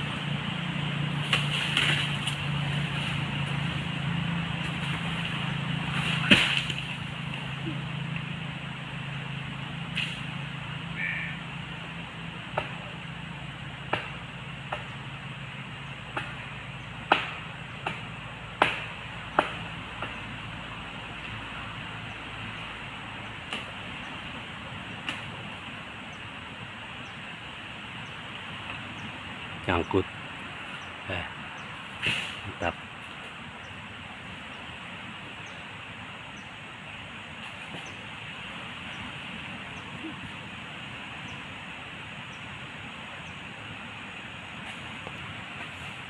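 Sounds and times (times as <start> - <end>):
low steady hum: 0.0 - 46.0
sharp knocks and cracks: 1.2 - 2.4, 4.6 - 7.4, 12.5 - 12.8, 13.9 - 14.9, 16.1 - 16.4, 17.1 - 20.2.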